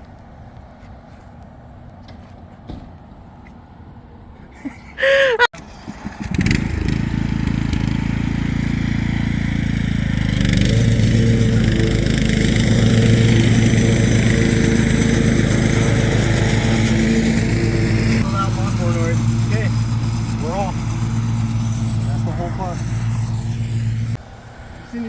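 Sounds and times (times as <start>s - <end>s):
engine starting and running: 5.6s - 24.6s.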